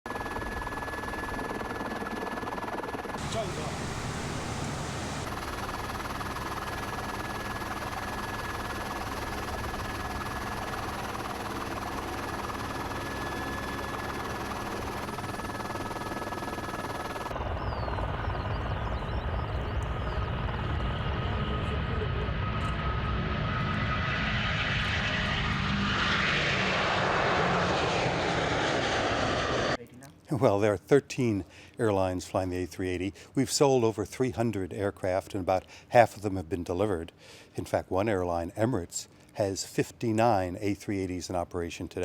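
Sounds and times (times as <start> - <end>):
jet airliner engine noise: 0.1 - 29.8.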